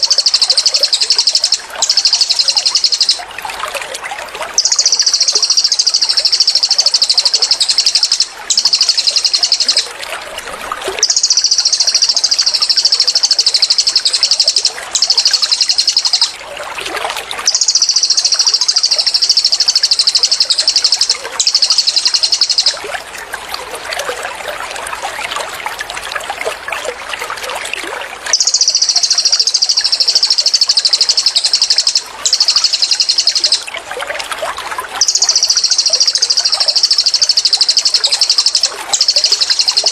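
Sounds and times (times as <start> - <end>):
songbird rattling trills: 0.0 - 3.2, 4.5 - 10.0, 11.0 - 16.4, 17.4 - 22.8, 28.3 - 33.8, 35.0 - 39.9
water trickling: 0.0 - 39.9.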